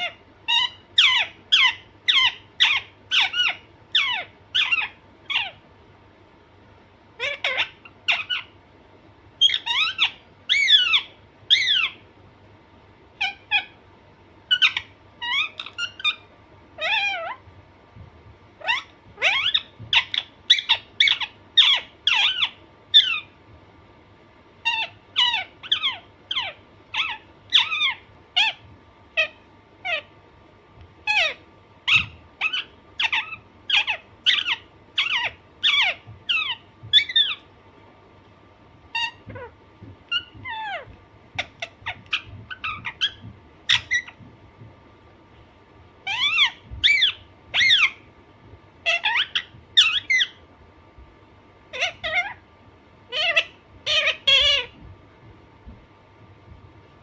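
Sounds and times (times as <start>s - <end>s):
parakeet squawking: 0.0s - 5.6s, 7.2s - 8.6s, 9.4s - 12.0s, 13.2s - 13.8s, 14.5s - 17.5s, 18.6s - 23.4s, 24.6s - 30.2s, 31.0s - 37.5s, 38.9s - 44.3s, 46.0s - 48.1s, 48.8s - 50.4s, 51.7s - 52.4s, 53.1s - 54.9s.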